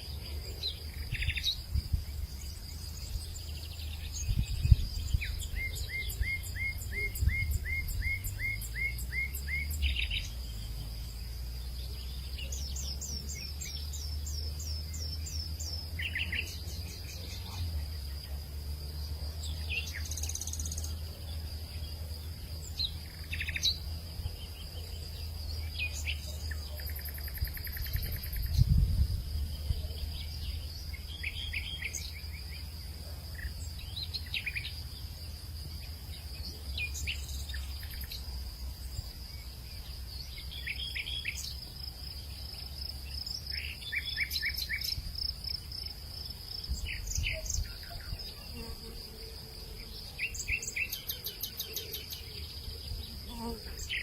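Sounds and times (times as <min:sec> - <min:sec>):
bird singing rising notes: 0:00.0 - 0:18.1
high insect drone: 0:00.0 - 0:54.0
wind rumble on microphone: 0:00.9 - 0:08.6, 0:27.3 - 0:30.7, 0:46.5 - 0:48.5.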